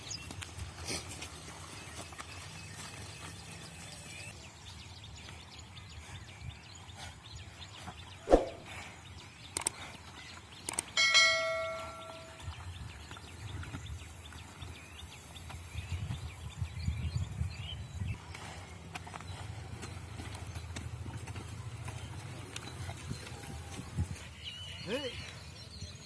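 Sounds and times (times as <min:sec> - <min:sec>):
metal bell ringing: 0:11.0 - 0:12.4.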